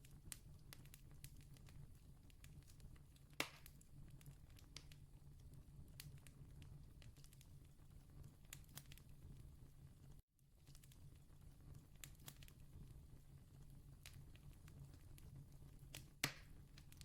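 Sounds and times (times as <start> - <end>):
campfire crackling: 0.0 - 9.4, 10.6 - 17.0.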